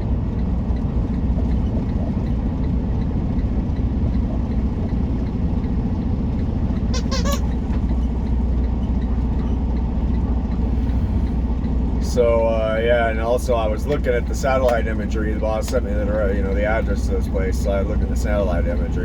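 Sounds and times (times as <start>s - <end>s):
truck engine running: 0.0s - 19.0s
brief high-pitched sound: 7.0s - 7.5s.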